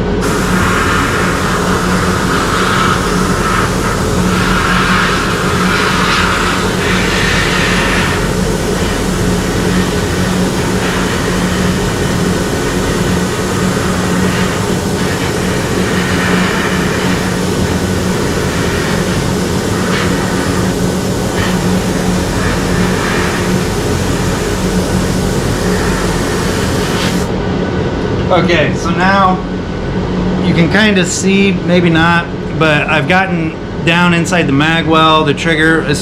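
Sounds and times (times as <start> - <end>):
air spray gun hissing: 0.0 - 27.4
loud motor hum: 0.0 - 30.5.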